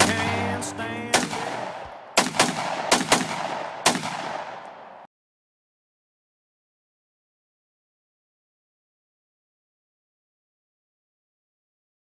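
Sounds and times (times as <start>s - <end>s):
rifle shots with echo: 0.0s - 5.1s.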